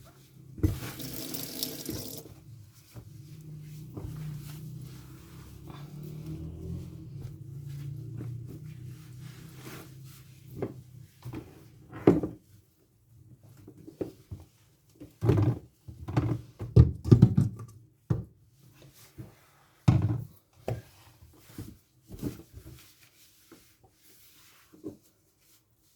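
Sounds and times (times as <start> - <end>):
kitchen items knocking and thumping: 15.2 - 18.3.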